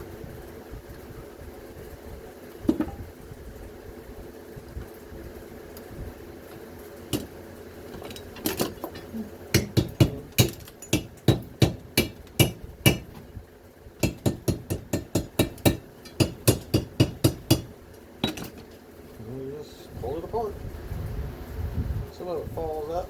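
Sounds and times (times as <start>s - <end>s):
hammer striking metal: 9.5s - 13.1s, 14.0s - 18.6s.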